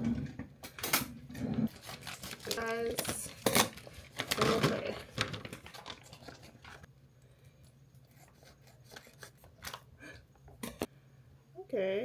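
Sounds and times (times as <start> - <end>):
packaging clicks and scrapes: 1.7 - 6.9.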